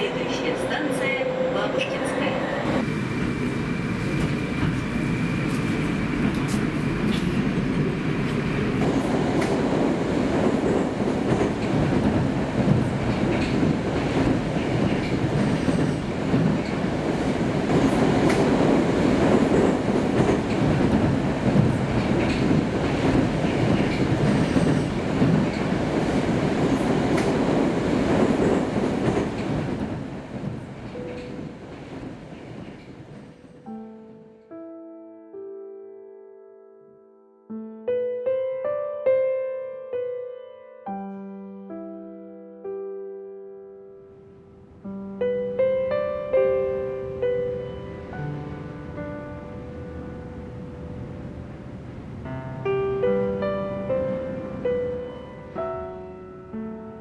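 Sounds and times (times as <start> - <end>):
train rumbling on rails: 0.0 - 33.7, 48.0 - 52.3.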